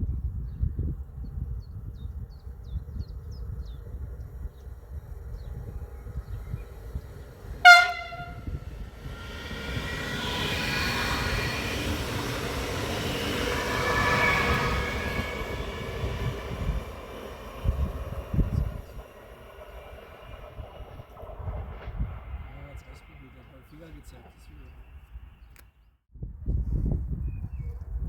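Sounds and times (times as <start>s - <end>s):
train passing: 3.2s - 25.6s
train horn blast: 7.6s - 11.6s.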